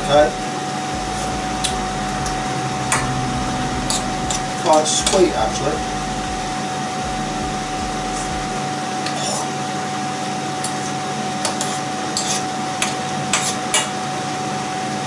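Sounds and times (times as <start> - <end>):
extractor fan humming: 0.0 - 9.6.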